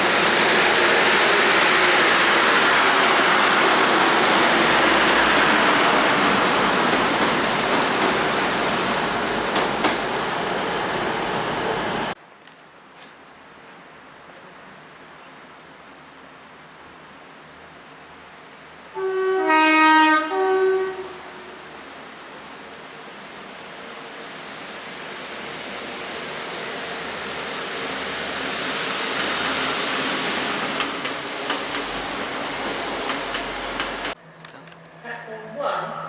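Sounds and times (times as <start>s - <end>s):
train running past: 0.0s - 12.2s, 15.5s - 36.0s
train two-tone horn: 18.9s - 21.9s.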